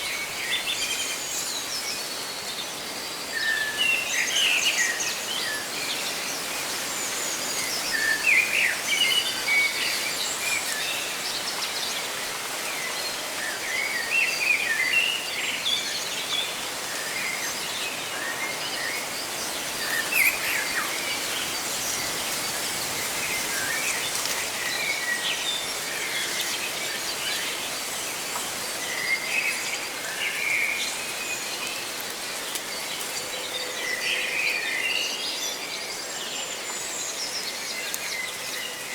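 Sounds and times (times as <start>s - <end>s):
leaves rustling: 0.0s - 35.2s
small birds chirping: 14.7s - 33.7s.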